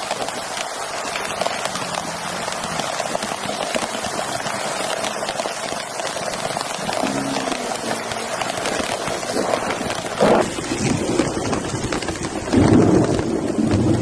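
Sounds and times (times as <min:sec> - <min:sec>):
rain: 0:00.0 - 0:14.0
wind buffeting microphone: 0:00.0 - 0:14.0.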